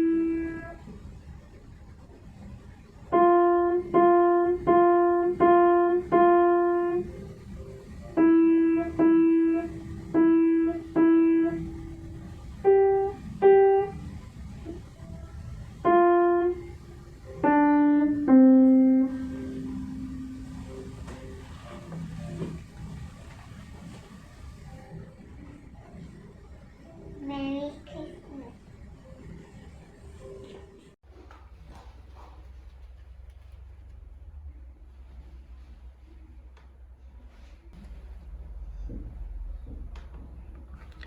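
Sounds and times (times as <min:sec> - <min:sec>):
slow piano melody: 0:00.0 - 0:01.1, 0:03.0 - 0:27.2.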